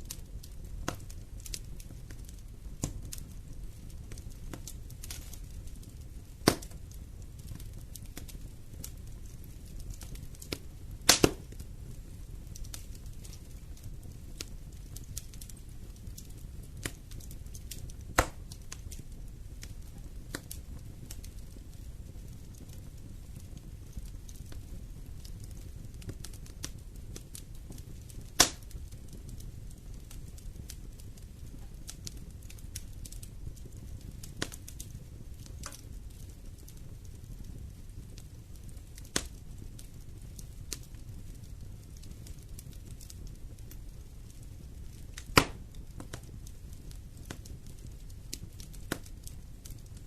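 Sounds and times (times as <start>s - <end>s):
wood fire crackling: 0.0s - 50.0s
sharp loud snaps: 11.1s - 11.4s, 18.2s - 18.4s, 45.4s - 45.6s.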